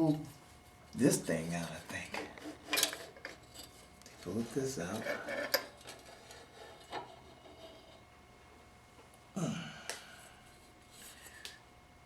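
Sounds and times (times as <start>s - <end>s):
breathy vocal sound falling: 9.4s - 10.2s.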